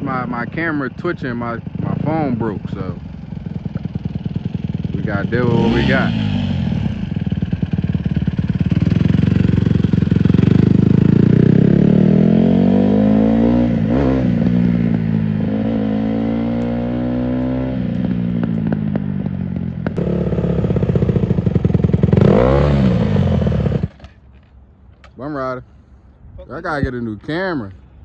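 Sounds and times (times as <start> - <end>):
dirt bike engine revving: 1.4 - 19.1, 20.0 - 23.9.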